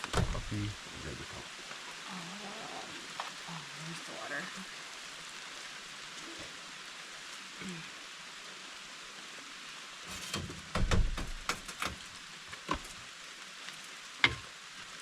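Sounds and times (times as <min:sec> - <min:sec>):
rain pattering: 0:00.0 - 0:15.0
clunks and knocks of handled objects: 0:10.2 - 0:12.0.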